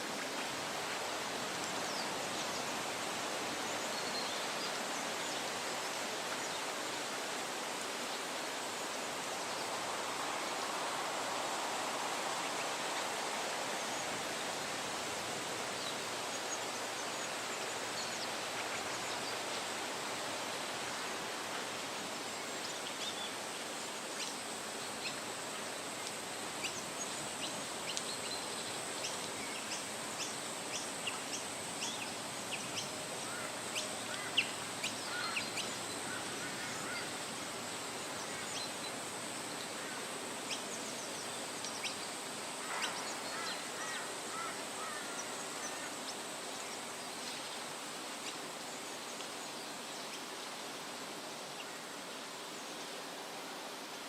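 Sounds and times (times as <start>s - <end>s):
wind rustling through leaves: 0.0s - 54.0s.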